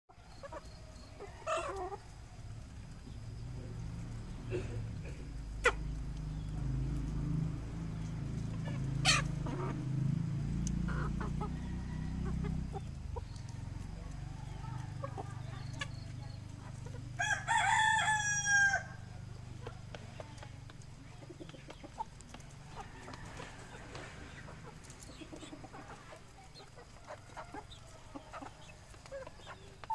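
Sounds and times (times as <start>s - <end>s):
chickens clucking softly: 0.1s - 17.2s, 18.9s - 29.9s
rooster crowing: 11.1s - 12.7s, 17.2s - 19.1s.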